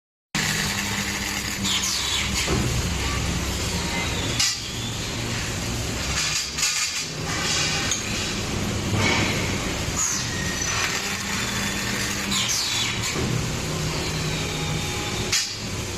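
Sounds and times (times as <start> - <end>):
welding machine hum: 0.4 - 15.9.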